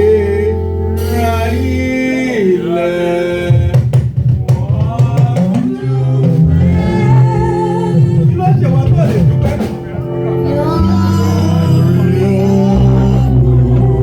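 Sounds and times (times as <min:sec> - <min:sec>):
praise music singing: 0:00.0 - 0:14.0
drum hits: 0:03.5 - 0:10.1.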